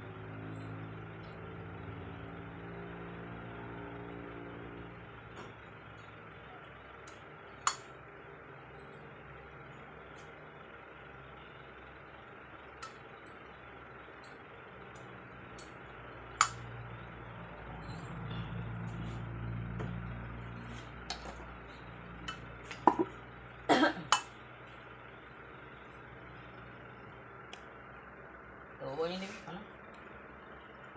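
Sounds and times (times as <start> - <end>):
low hum: 12.8 - 28.8.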